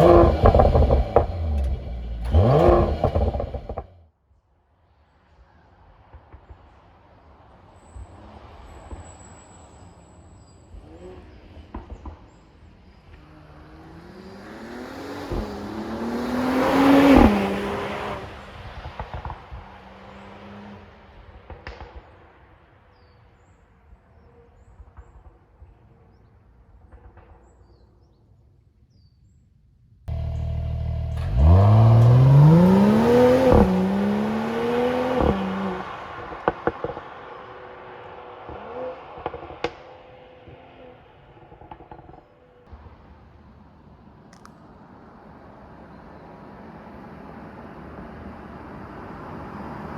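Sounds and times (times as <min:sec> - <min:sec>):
car engine accelerating hard: 0:00.0 - 0:03.9, 0:13.4 - 0:18.5, 0:30.1 - 0:39.5.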